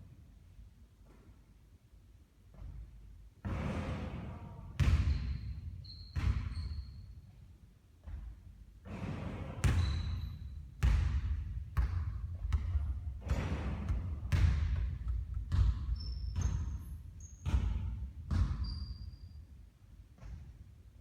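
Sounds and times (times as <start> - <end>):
basketball bouncing on court: 4.8 - 7.0, 8.0 - 19.2, 20.2 - 20.6
shoe squeaks: 5.1 - 7.3, 9.7 - 10.6, 15.8 - 17.5, 18.5 - 19.6.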